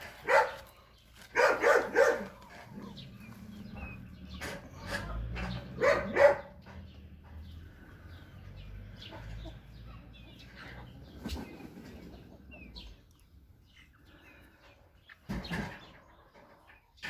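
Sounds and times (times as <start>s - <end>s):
dog barking: 0.2s - 0.7s, 1.3s - 2.4s, 5.7s - 6.6s.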